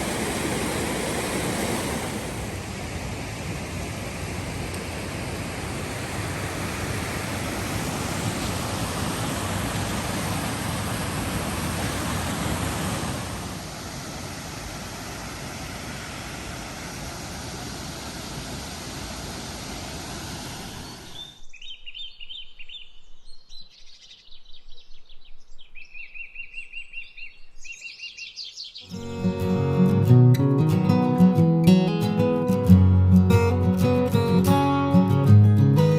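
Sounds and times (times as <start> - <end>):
waterfall rushing: 0.0 - 21.3
small birds chirping: 20.7 - 29.0.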